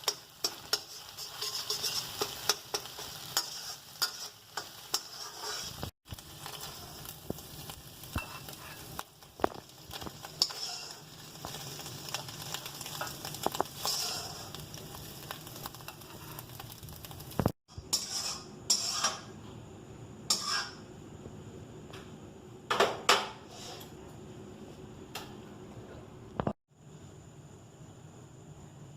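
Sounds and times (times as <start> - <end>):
metal utensil scraping a pan: 0.0 - 7.2, 8.1 - 16.7, 17.4 - 19.4, 20.3 - 20.8, 23.4 - 23.9
food sizzling in a frying pan: 0.0 - 19.4, 20.2 - 20.9.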